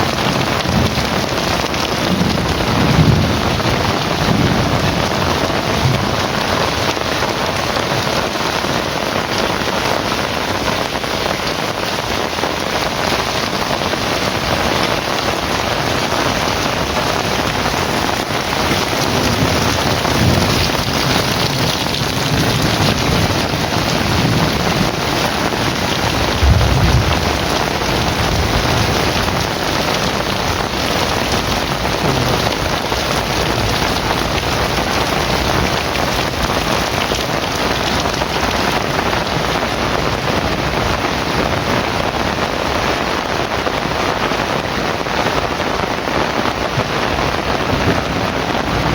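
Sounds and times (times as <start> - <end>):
thunder rolling: 0.0 - 8.0, 13.0 - 42.2
heavy rain pouring: 0.0 - 48.9.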